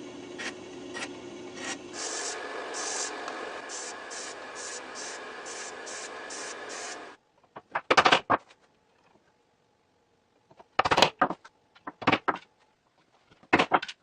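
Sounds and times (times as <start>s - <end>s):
steady machine hum: 0.0s - 7.2s.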